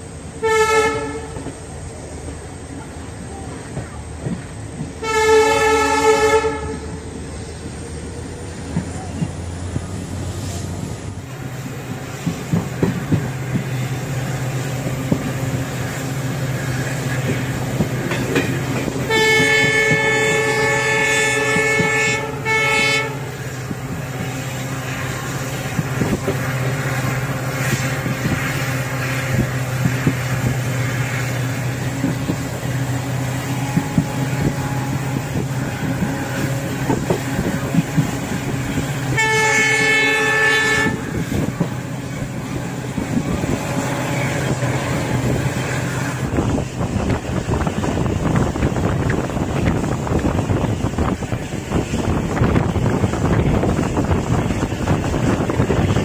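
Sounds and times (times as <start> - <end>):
train engine running: 0.0 - 56.0
train horn blasts: 0.4 - 1.5, 5.0 - 7.1, 18.8 - 23.6, 32.0 - 46.5.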